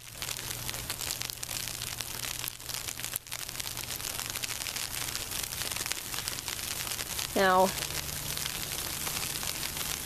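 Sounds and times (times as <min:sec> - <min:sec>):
sleet pellets ticking on ground: 0:00.0 - 0:10.0.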